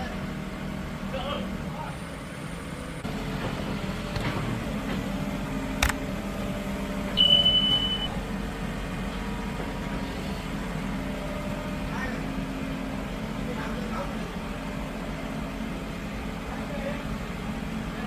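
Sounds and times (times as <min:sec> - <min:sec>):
low mechanical hum: 0:03.0 - 0:18.0
sharp click: 0:05.8 - 0:06.0
short high beep: 0:07.2 - 0:08.2.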